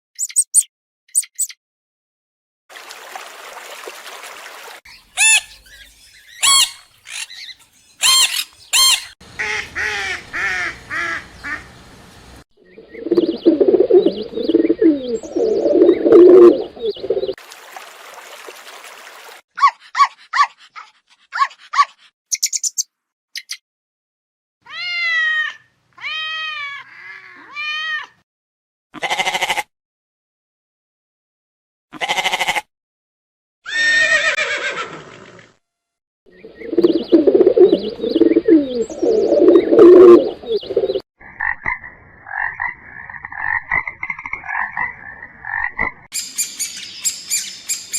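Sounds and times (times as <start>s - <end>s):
sharp chirping animal calls: 0.2s - 1.6s, 4.9s - 10.1s, 21.8s - 23.6s, 46.1s - 47.9s
rising and falling pitched calls: 4.9s - 11.7s, 12.7s - 17.4s, 36.4s - 41.0s
deeper animal calls: 5.2s - 10.6s, 36.3s - 41.6s.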